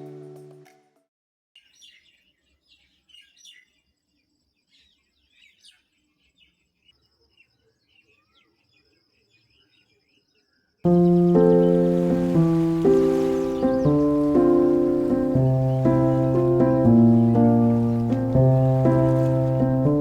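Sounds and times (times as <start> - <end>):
background music: 0.0 - 0.9, 10.9 - 20.0
faint birds chirping: 1.6 - 20.0.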